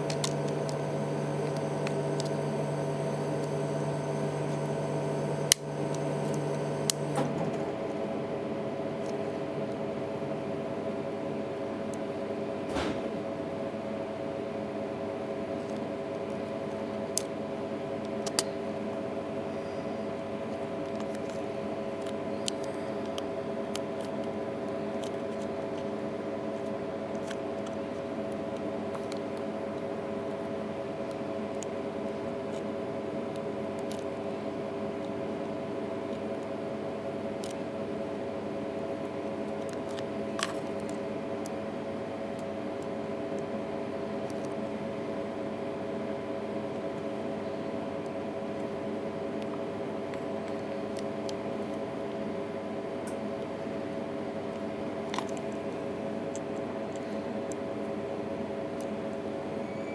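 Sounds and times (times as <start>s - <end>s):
sharp small clicks and taps: 0.0s - 0.8s, 18.2s - 18.6s
steady multi-tone hum: 0.0s - 59.9s.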